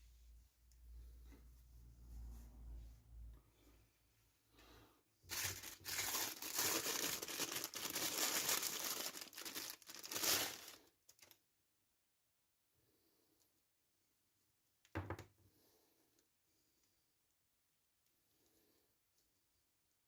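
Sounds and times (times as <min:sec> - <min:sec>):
packaging crinkling: 0:05.3 - 0:11.4.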